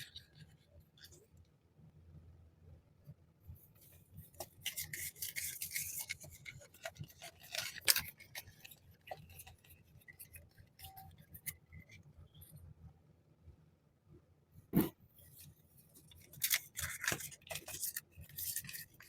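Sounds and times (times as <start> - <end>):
packaging rustling and crinkling: 4.3 - 11.6, 16.0 - 19.0.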